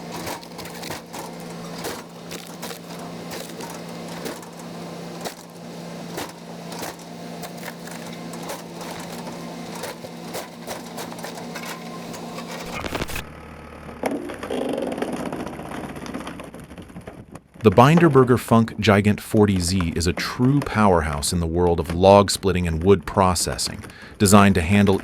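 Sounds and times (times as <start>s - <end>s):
wood cracking and splitting: 0.0s - 13.3s, 14.0s - 18.3s
dull machine sounds: 0.0s - 25.0s
excavator engine hum: 0.0s - 25.0s.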